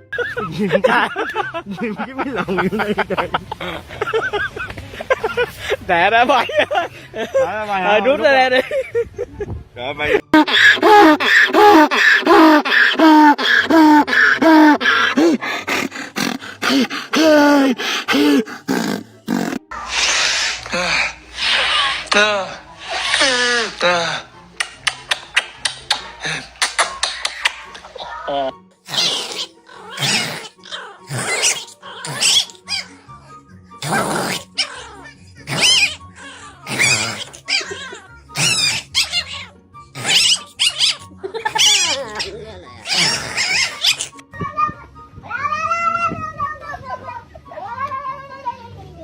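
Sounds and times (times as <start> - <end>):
background music: 0.0 - 49.0
dog barking and yowling: 34.5 - 44.1.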